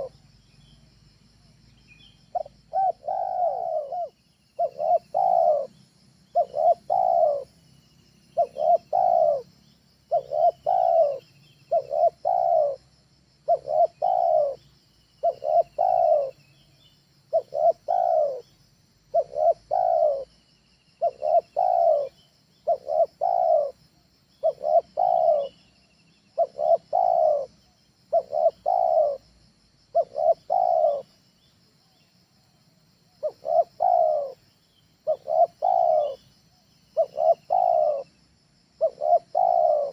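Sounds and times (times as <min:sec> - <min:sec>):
dove cooing: 0:00.0 - 0:00.2, 0:02.2 - 0:07.6, 0:08.3 - 0:16.4, 0:17.3 - 0:20.4, 0:21.0 - 0:23.8, 0:24.4 - 0:25.6, 0:26.3 - 0:29.2, 0:29.9 - 0:31.2, 0:33.1 - 0:36.4, 0:37.0 - 0:38.1, 0:38.8 - 0:39.9.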